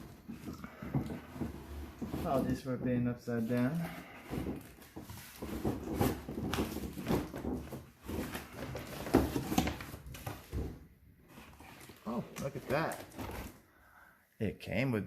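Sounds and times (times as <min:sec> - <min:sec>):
cardboard packaging rustling: 0:03.3 - 0:13.7.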